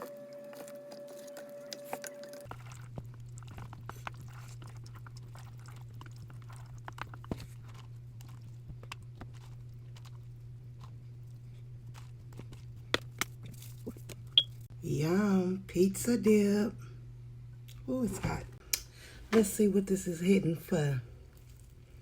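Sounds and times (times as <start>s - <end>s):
person chewing: 0.0s - 14.5s
steady low hum: 0.0s - 22.0s.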